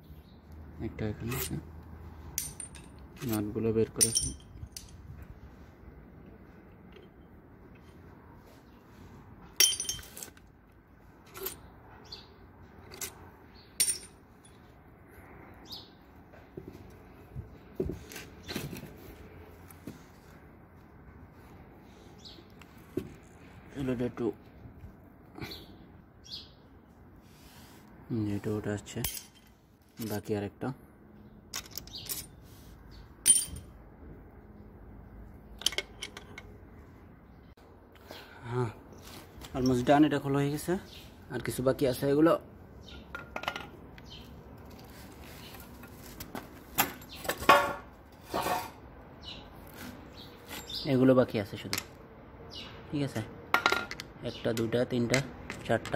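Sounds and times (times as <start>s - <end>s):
metal nuts clinking: 2.4s - 5.0s, 9.6s - 10.4s, 13.8s - 14.7s, 29.0s - 29.6s, 31.5s - 32.4s, 33.2s - 33.7s, 35.6s - 36.5s
metal scrape: 48.2s - 48.8s.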